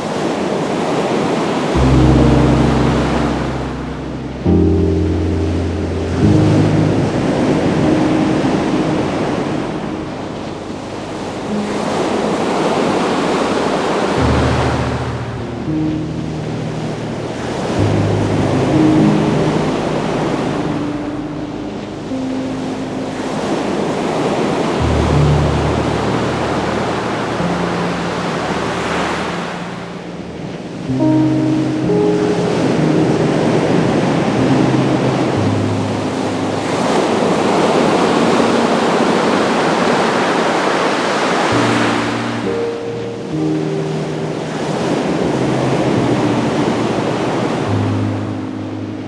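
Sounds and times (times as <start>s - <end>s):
ocean surf washing on shore: 0.0s - 49.0s
waves breaking on beach: 0.0s - 49.0s
low held music notes: 1.7s - 49.0s.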